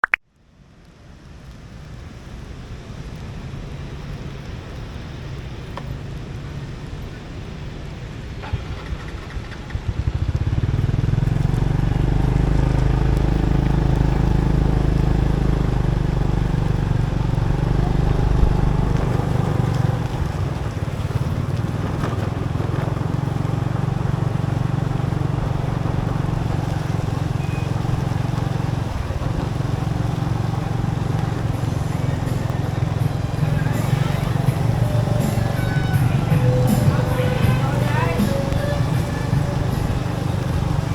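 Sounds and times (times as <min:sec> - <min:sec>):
road noise rush: 0:00.0 - 0:40.9
motorbike engine running: 0:08.4 - 0:40.9.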